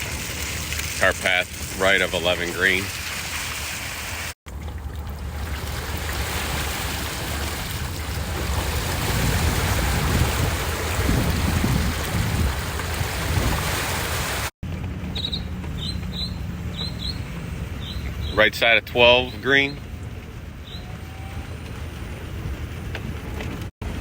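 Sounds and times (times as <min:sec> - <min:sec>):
wind buffeting microphone: 0:05.3 - 0:18.4.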